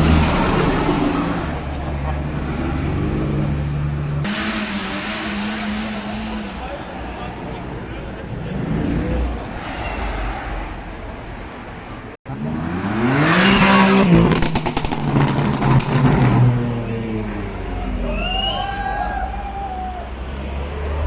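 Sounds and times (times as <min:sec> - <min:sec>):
car engine revving: 0:02.3 - 0:09.7, 0:12.3 - 0:18.0
sharp cracks from car: 0:14.2 - 0:16.4.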